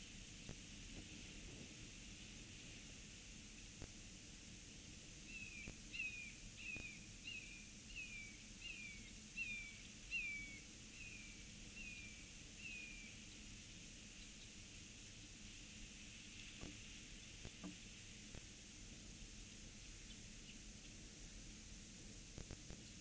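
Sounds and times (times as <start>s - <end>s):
faint steady hiss: 0.0s - 23.0s.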